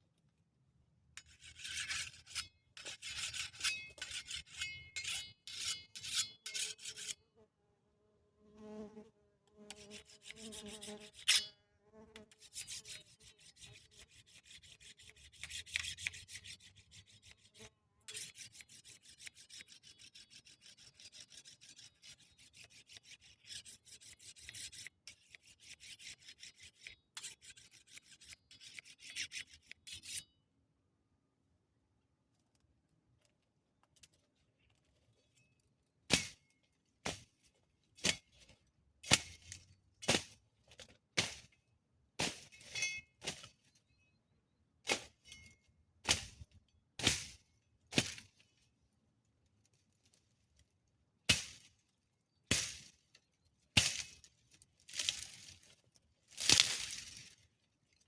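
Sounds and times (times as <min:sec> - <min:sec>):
rapid rasping scraping strokes: 0:01.2 - 0:07.2, 0:09.7 - 0:11.5, 0:12.3 - 0:30.2.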